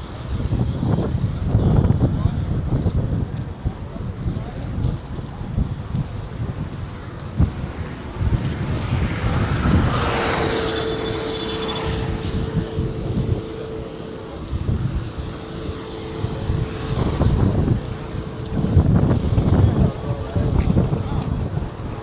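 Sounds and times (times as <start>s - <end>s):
low rumbling: 5.6s - 22.0s
vehicle passing by: 7.2s - 22.0s.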